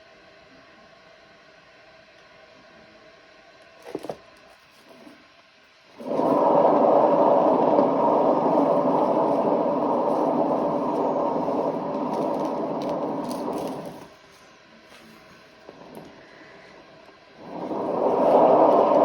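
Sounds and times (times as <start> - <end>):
hair dryer blowing: 6.0 - 14.2, 15.6 - 19.0.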